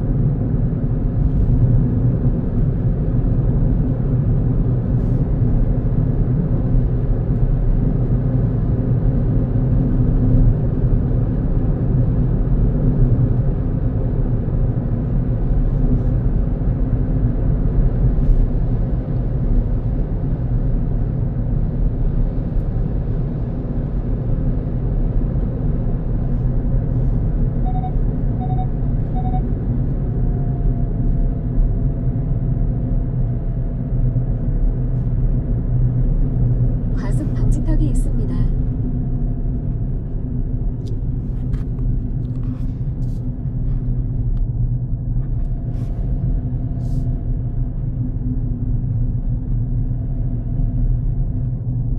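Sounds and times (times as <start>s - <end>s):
car engine rumble: 0.0s - 51.9s
short electronic beeps: 27.6s - 29.5s.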